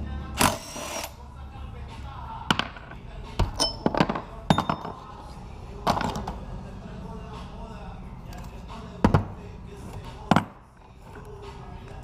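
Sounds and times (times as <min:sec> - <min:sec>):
metallic clinks and knocks: 0:02.5 - 0:05.1.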